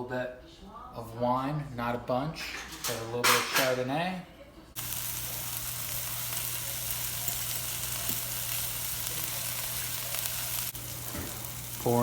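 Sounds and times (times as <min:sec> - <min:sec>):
onions sizzling in butter: 0:04.8 - 0:12.0.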